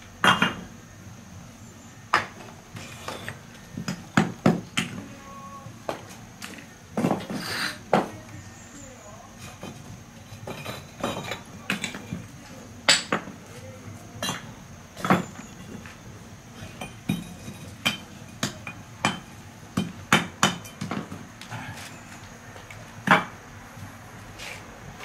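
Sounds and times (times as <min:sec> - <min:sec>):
hard objects knocking and clinking: 0:09.5 - 0:12.3, 0:16.6 - 0:21.2.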